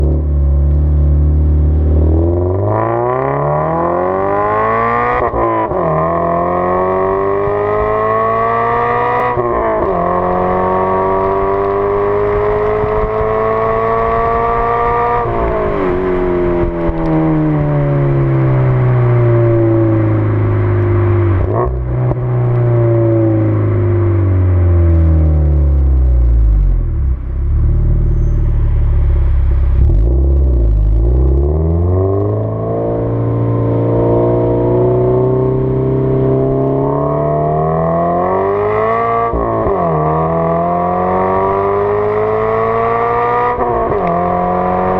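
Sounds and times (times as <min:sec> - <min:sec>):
car engine accelerating hard: 0:00.0 - 0:44.9.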